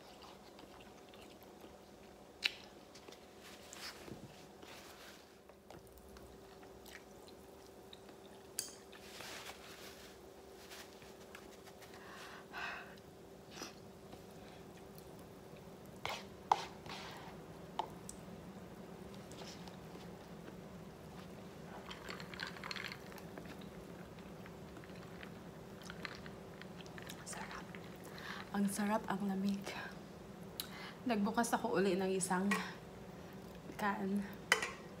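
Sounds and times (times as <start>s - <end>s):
person chewing and slurping noodles: 0.0s - 3.1s, 21.7s - 28.1s
steady low hum: 0.0s - 35.0s.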